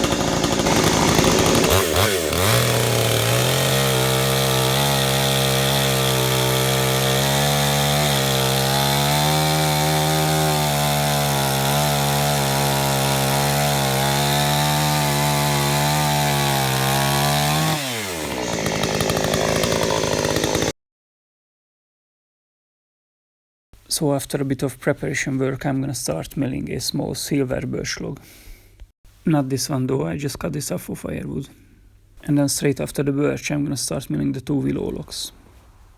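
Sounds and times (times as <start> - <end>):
chainsaw cutting a log: 0.0 - 20.7.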